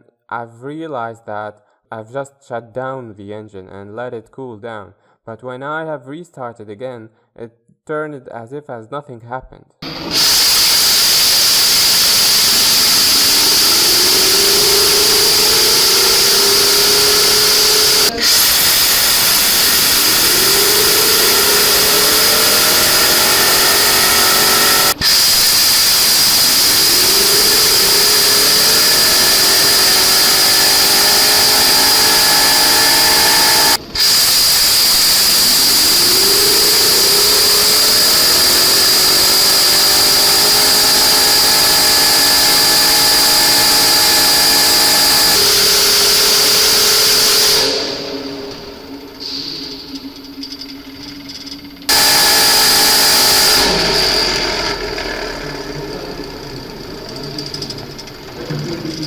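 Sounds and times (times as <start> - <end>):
jet engine whine spinning up: 9.8 - 59.0
rushing air hiss: 49.2 - 50.0.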